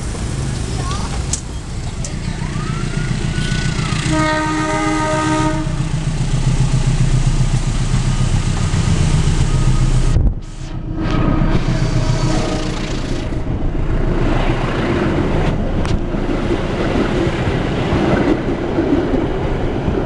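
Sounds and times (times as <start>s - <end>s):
diesel locomotive engine rumble: 0.0s - 20.0s
train horn blast: 3.8s - 5.9s, 10.6s - 13.3s.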